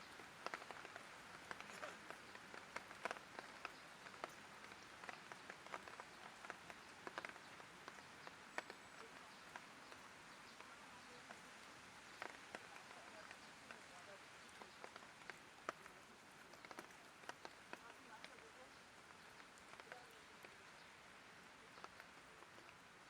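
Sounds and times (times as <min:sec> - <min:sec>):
light rain hiss: 0:00.0 - 0:23.0
raindrops ticking: 0:00.0 - 0:23.0.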